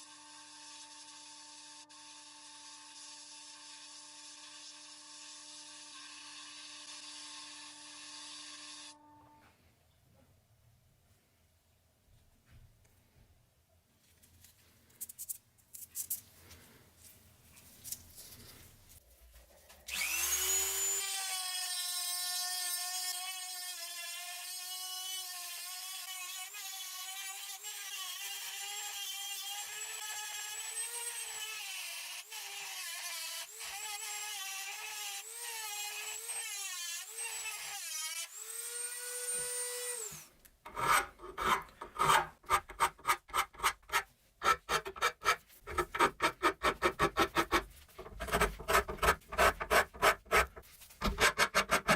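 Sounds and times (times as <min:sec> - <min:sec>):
small power tool motor running: 0:19.9 - 0:23.0
hand scraping strokes: 0:40.7 - 0:51.9.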